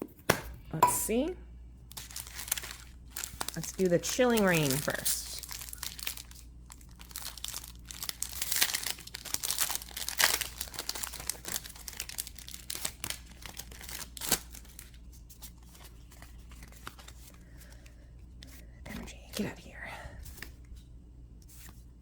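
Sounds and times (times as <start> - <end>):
foil wrapper crinkling and tearing: 1.8 - 17.8.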